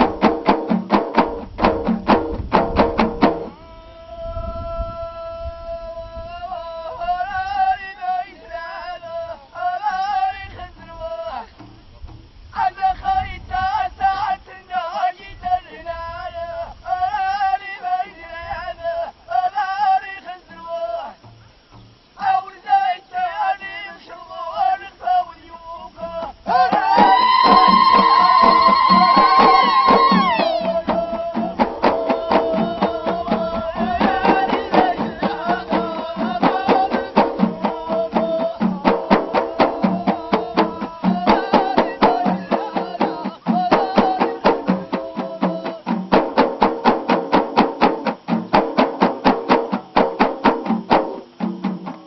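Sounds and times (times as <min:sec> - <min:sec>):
frame drums beating fast: 0:00.0 - 0:03.6, 0:26.2 - 0:52.0
group singing: 0:03.1 - 0:11.5, 0:12.6 - 0:21.2, 0:22.2 - 0:49.3
voices chanting wavering melody: 0:22.4 - 0:46.0.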